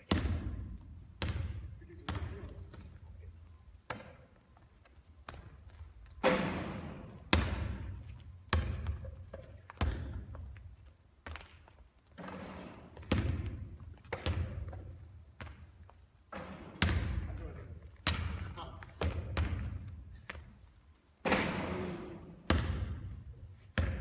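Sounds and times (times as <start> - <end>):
basketballs bouncing in gym: 0.0 - 3.2, 3.8 - 24.0
ball hitting hoop: 0.1 - 2.4, 6.2 - 10.4, 12.2 - 15.6, 16.3 - 17.4, 18.0 - 19.9, 21.2 - 24.0.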